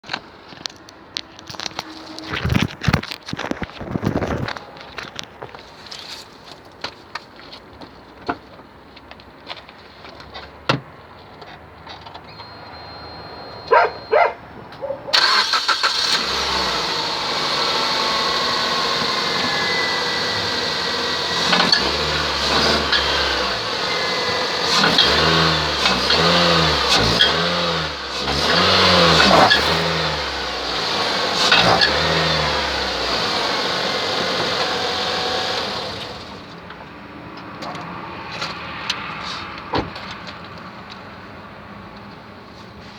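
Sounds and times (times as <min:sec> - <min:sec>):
creaking under car: 0:00.0 - 0:06.4, 0:14.7 - 0:36.4
car engine starting and running: 0:12.0 - 0:36.9.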